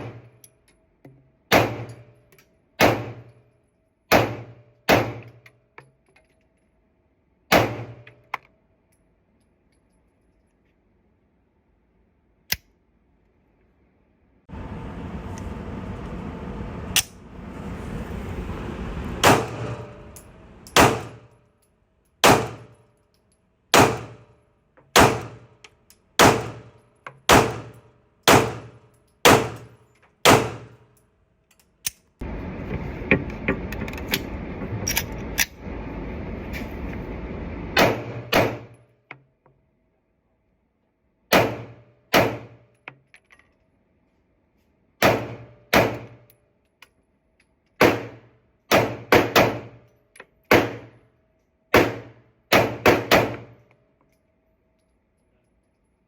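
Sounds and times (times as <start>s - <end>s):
pistol firing single shots: 1.5s - 2.0s, 2.8s - 3.3s, 4.1s - 5.3s, 7.5s - 8.0s, 20.8s - 21.3s, 22.2s - 22.8s, 23.7s - 24.2s, 25.0s - 25.5s, 26.2s - 26.7s, 27.3s - 29.6s, 30.2s - 30.7s, 41.3s - 42.5s, 47.8s - 49.7s, 51.8s - 53.6s.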